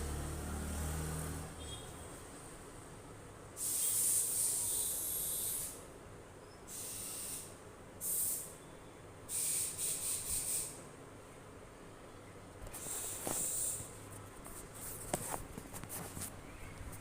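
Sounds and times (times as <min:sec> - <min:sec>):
spray hissing in bursts: 0:03.6 - 0:05.8, 0:06.7 - 0:08.6, 0:09.3 - 0:10.8, 0:12.8 - 0:13.9.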